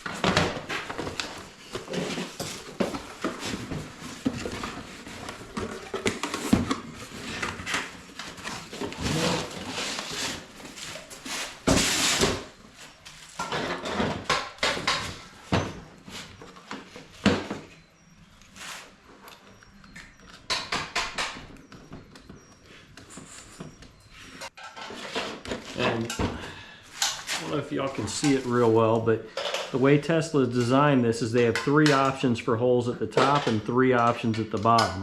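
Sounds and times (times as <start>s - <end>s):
parts knocking and clicking: 19.3s - 22.6s.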